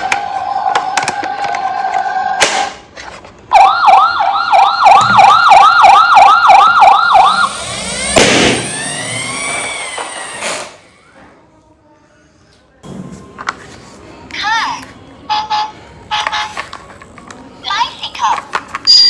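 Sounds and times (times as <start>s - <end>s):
toy electronic siren: 3.5s - 10.4s
burst of noise: 7.2s - 10.9s.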